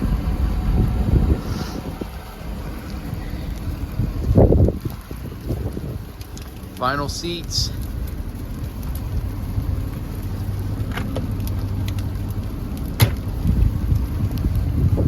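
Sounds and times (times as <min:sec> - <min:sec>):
diesel engine idling: 0:00.0 - 0:15.0
light ticks: 0:02.8 - 0:14.8.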